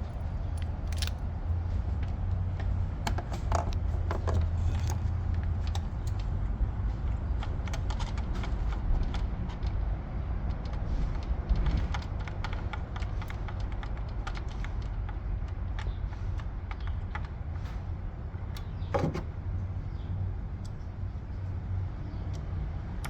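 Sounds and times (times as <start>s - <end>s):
hand tools clicking and rattling: 0.0s - 1.2s.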